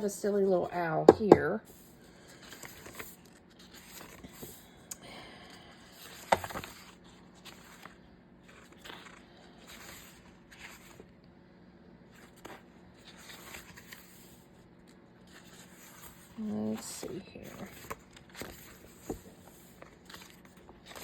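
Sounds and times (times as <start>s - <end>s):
paper pages rustling: 2.2s - 4.7s, 5.8s - 11.1s, 12.1s - 21.0s.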